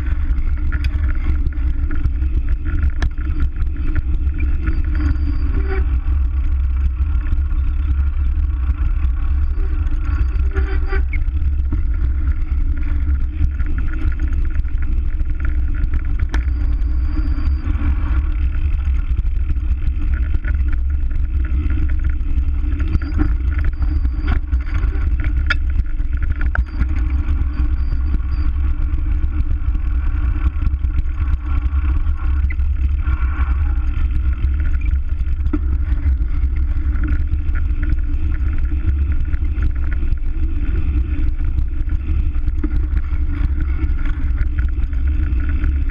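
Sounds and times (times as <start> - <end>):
road noise: 17.4 - 45.8.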